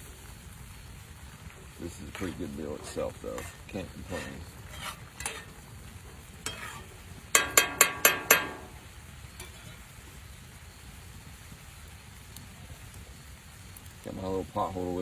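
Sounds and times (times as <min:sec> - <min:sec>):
food sizzling: 0:00.0 - 0:15.0
metal utensil knocking skillet: 0:02.8 - 0:05.6, 0:06.4 - 0:08.8, 0:09.4 - 0:09.8.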